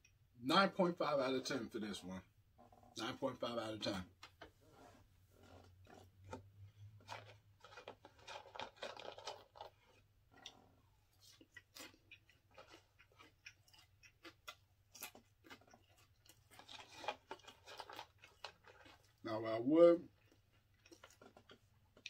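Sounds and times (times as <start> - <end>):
person chewing and licking fingers: 7.7 - 19.2, 20.1 - 22.0.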